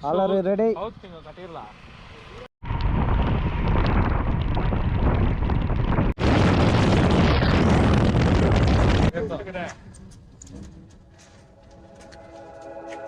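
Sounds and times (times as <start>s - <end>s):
wind rumbling on microphone: 2.6s - 11.2s.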